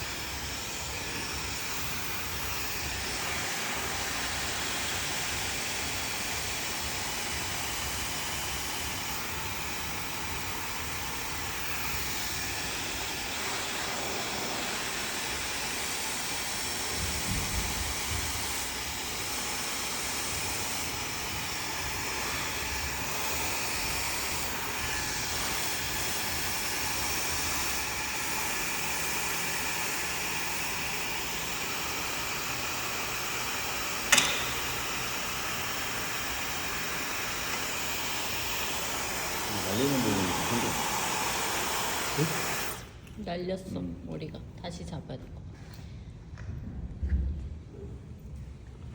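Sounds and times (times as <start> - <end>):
hair dryer blowing: 0.0 - 43.6
sharp click: 34.1 - 34.7.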